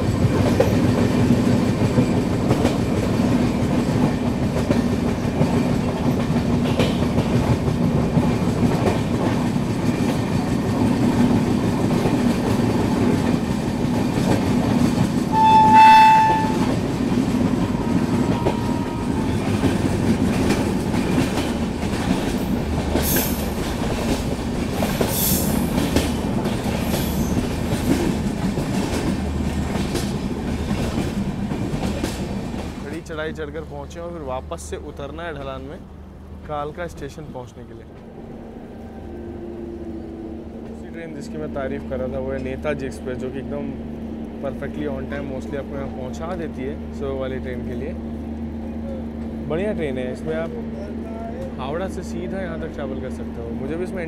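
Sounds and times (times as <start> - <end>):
wheels clacking on rail joints: 0.0 - 33.6
train rumbling: 0.0 - 54.0
train horn: 15.3 - 19.9.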